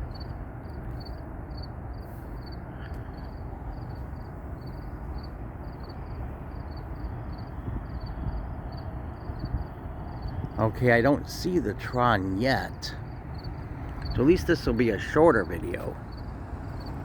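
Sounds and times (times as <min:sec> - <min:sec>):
insects chirping: 0:00.0 - 0:17.0
low background rumble: 0:00.0 - 0:17.0.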